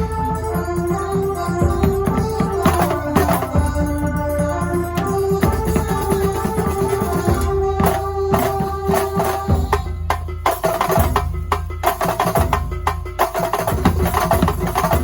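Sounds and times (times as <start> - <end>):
deep bass: 0.0 - 6.4
held melodic notes: 0.0 - 12.0
fast drumming: 0.0 - 15.0.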